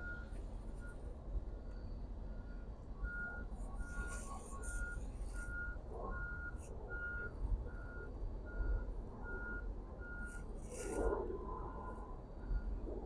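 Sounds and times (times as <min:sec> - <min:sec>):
vehicle reversing alarm beeping: 0:00.0 - 0:13.0.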